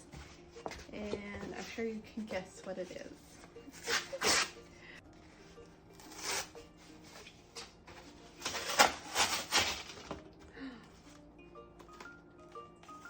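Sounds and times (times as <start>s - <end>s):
packaging ripping: 8.4s - 10.1s.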